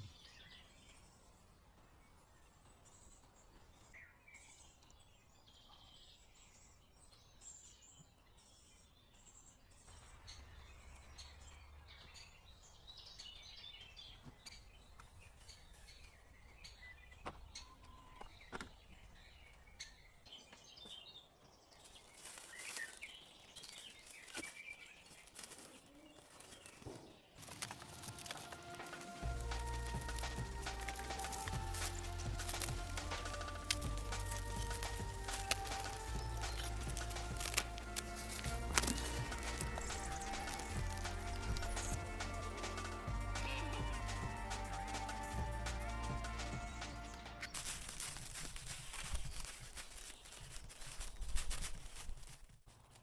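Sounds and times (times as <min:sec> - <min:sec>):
faint birds chirping: 0:00.0 - 0:52.1
sharp crackling clicks: 0:27.4 - 0:43.7.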